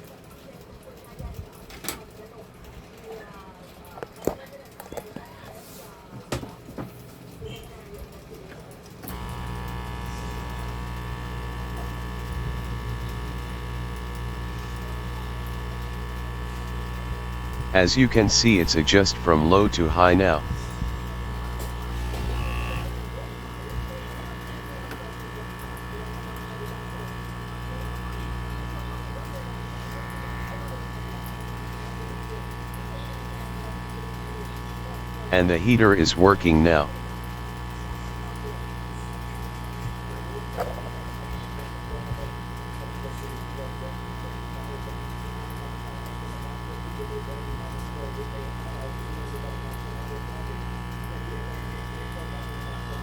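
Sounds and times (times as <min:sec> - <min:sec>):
blower fan whirring: 0:09.1 - 0:32.0
electrical hum: 0:09.1 - 0:53.0.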